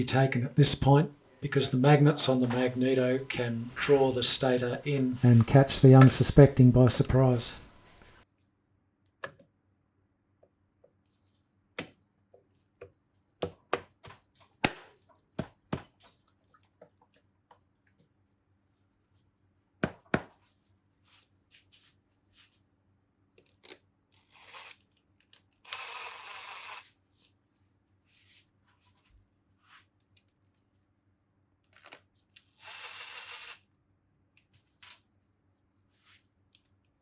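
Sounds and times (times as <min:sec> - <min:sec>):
rustling noise: 0:20.4 - 0:22.8.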